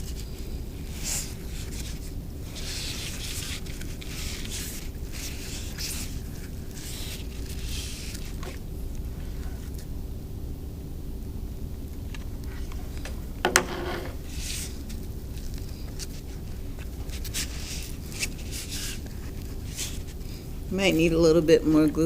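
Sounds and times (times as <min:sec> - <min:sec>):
steady low hum: 0:00.0 - 0:22.0
twine rustling and scraping: 0:12.5 - 0:22.0.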